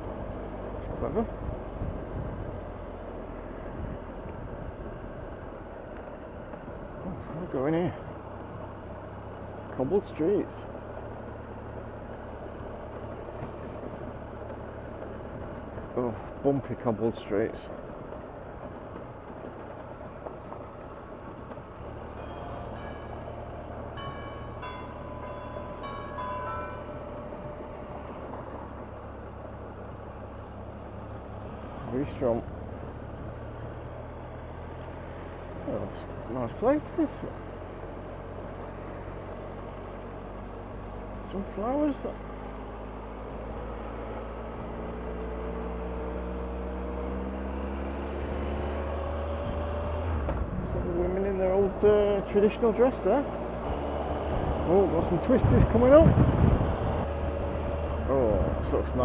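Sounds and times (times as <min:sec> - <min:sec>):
motorcycle engine: 0:00.0 - 0:59.0
tyres rumbling over cobblestones: 0:00.0 - 0:59.0
wind and road noise: 0:00.0 - 0:59.0
wind noise: 0:01.4 - 0:02.6, 0:55.3 - 0:58.6.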